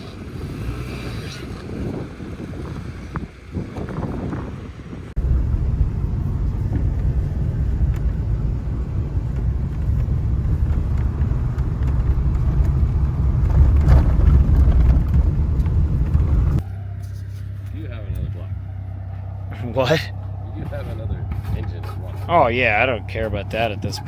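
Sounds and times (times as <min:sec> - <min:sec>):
car engine rumbling: 0:00.0 - 0:24.0.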